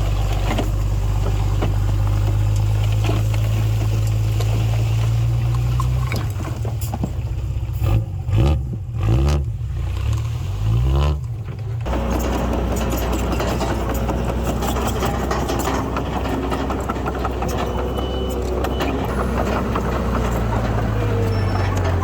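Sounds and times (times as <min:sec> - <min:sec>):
heavy diesel engine revving: 0:00.0 - 0:22.0.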